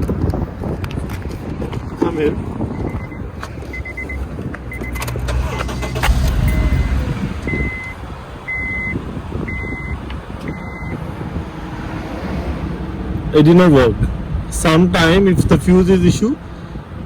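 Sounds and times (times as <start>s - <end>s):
car warning chime beeping: 2.8s - 11.0s
low rumble: 5.2s - 9.8s.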